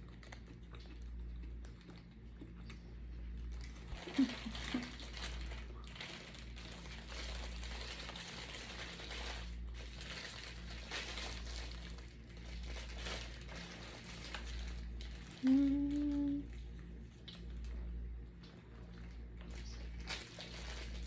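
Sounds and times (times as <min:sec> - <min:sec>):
paper wrapper crinkling: 0:03.4 - 0:16.6, 0:18.9 - 0:21.0
person humming: 0:15.4 - 0:16.5.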